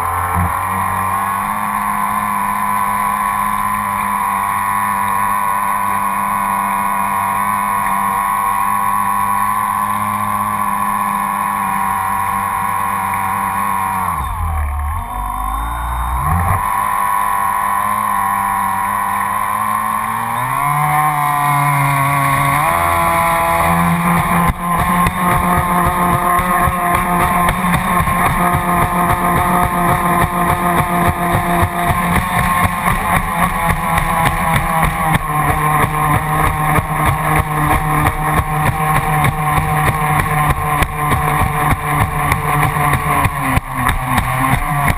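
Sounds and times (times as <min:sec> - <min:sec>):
electric boat motor whining: 0:00.0 - 0:44.9
hull pulsing over water: 0:00.0 - 0:44.9
propeller churning water: 0:22.7 - 0:44.9.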